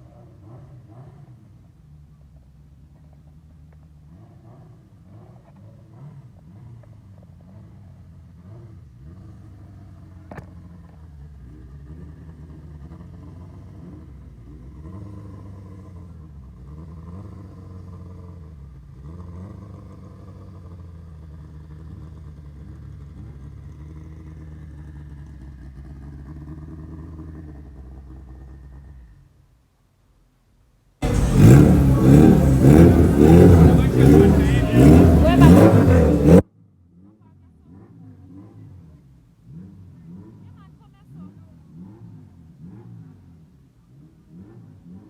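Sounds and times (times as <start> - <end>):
vehicle engine running: 31.0 - 36.4.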